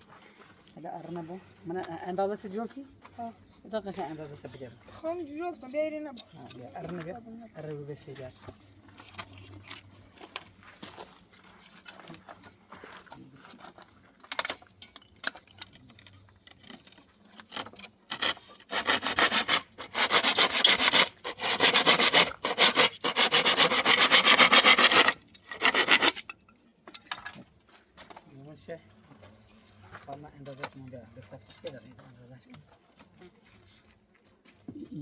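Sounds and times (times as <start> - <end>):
hand saw cutting timber: 16.6 - 26.3.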